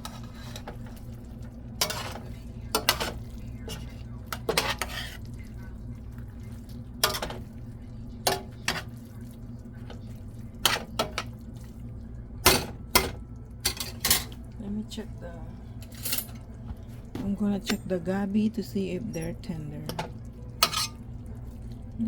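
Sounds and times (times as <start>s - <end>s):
steady low hum: 0.0s - 22.0s
utensil clattering against pot: 7.0s - 7.4s.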